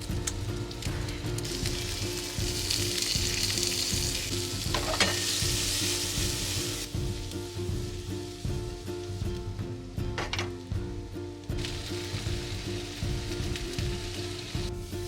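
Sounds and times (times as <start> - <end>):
food sizzling in a frying pan: 0.0 - 9.7, 11.5 - 15.0
utensil scraping a pan: 0.7 - 9.3.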